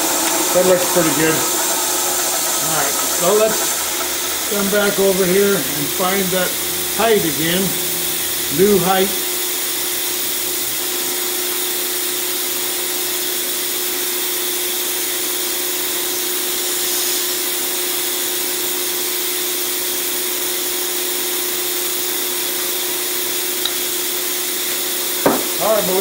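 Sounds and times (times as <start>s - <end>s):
milling machine humming: 0.0s - 26.0s.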